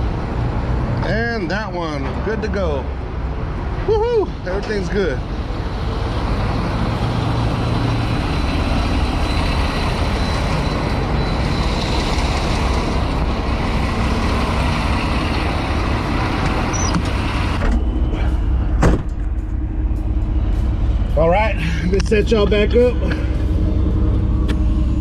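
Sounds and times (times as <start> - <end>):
outdoor noise: 0.0 - 25.0
truck engine running: 0.0 - 25.0
sharp thump: 18.8 - 19.4.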